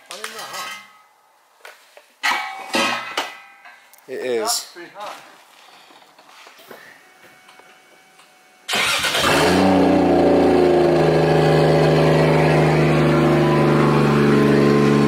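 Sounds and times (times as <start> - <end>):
engine starting and idling: 8.7 - 15.0.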